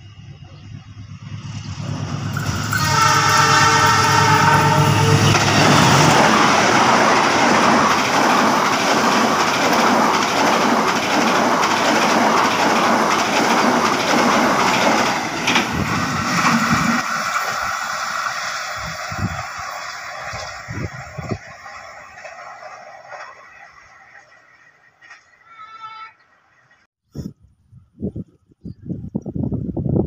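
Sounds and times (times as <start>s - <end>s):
train rumbling past: 0.0s - 26.9s.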